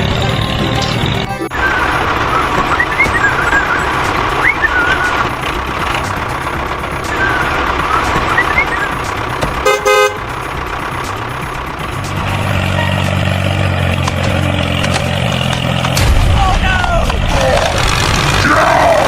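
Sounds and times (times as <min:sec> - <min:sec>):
truck engine running: 0:00.0 - 0:19.0
high chirps: 0:01.5 - 0:05.3, 0:07.0 - 0:09.2
horn toot: 0:09.6 - 0:10.4.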